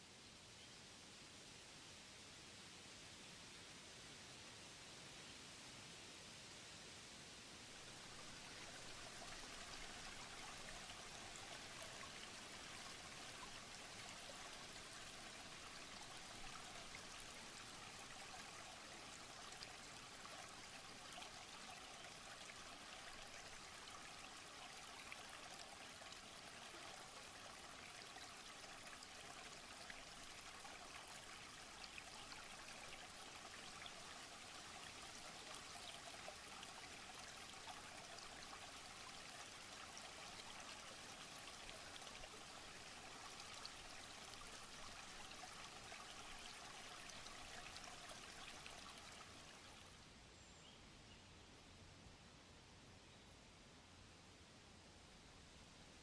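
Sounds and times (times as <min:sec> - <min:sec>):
running water trickling: 0:07.8 - 0:50.0.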